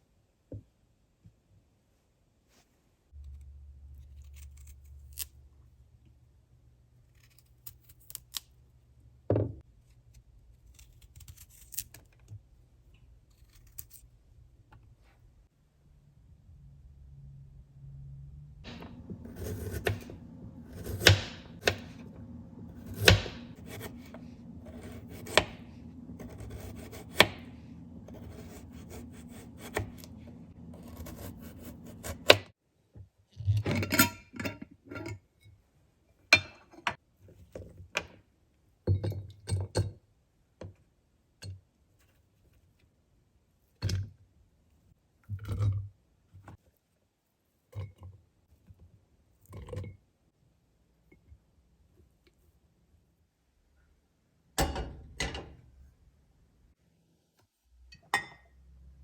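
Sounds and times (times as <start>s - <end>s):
steady low hum: 15.3s - 32.5s.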